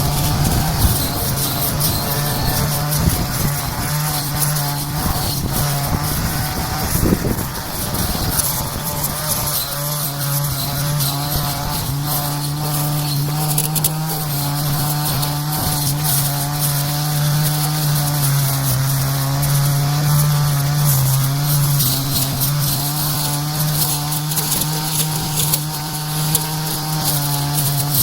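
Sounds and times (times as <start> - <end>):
brush cutter engine at high revs: 0.0 - 28.0
scattered crackles: 0.0 - 28.0.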